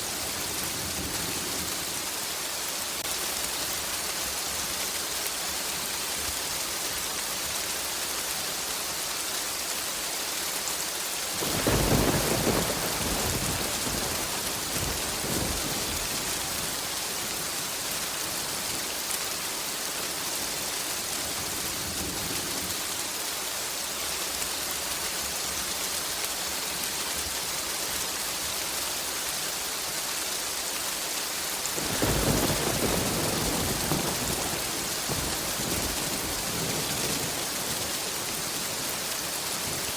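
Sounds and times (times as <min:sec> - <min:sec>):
steady rain: 0:00.0 - 0:39.9
rolling thunder: 0:11.4 - 0:18.9, 0:31.8 - 0:39.9.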